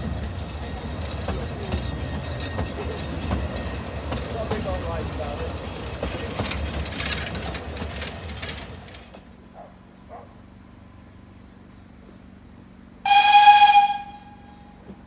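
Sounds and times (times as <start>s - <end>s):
narrow-gauge train rattling: 0.0s - 10.2s, 13.0s - 15.0s
steam locomotive whistle blast: 13.0s - 14.8s.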